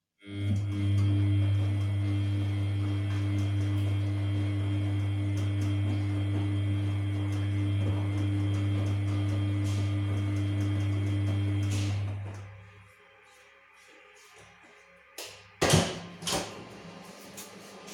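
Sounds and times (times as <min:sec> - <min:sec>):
washing machine drain pump humming: 0:00.3 - 0:13.0.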